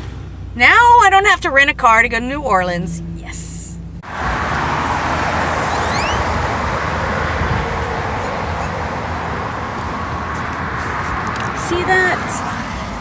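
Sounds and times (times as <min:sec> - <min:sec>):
car road and engine noise: 0:00.0 - 0:13.0
short rising chirp: 0:04.8 - 0:07.2.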